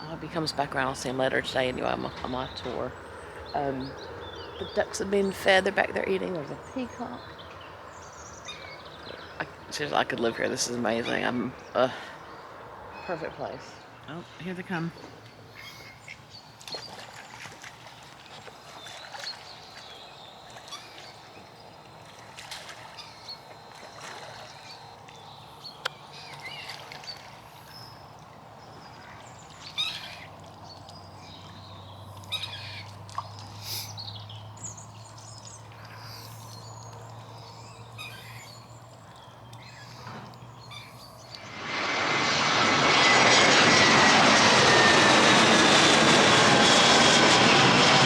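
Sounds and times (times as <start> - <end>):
birds chirping: 0.0 - 22.1, 22.9 - 41.9
distant airplane drone: 0.0 - 48.0
light water splashing: 15.2 - 41.6.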